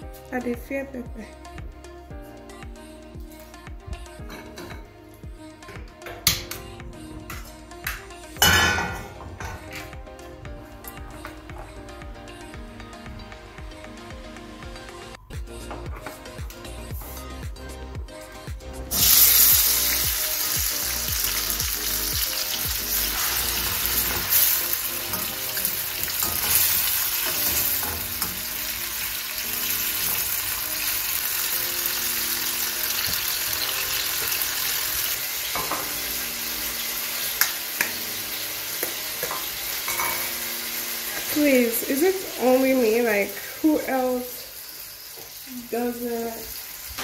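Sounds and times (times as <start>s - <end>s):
vegetables sizzling in hot oil: 18.9s - 47.0s.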